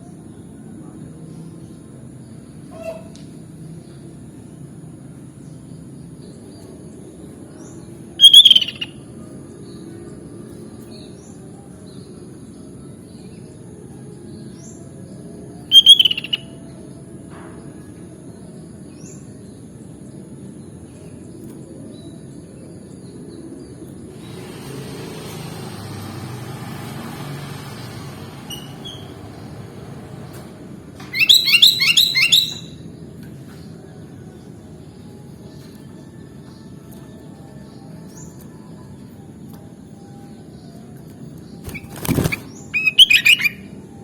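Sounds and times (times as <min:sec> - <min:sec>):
bulbul calls: 0:08.2 - 0:09.0, 0:15.7 - 0:16.5, 0:31.1 - 0:32.8, 0:41.7 - 0:43.7
faint bird chirps: 0:08.2 - 0:09.2, 0:15.7 - 0:16.6, 0:31.1 - 0:32.8, 0:39.9 - 0:44.0.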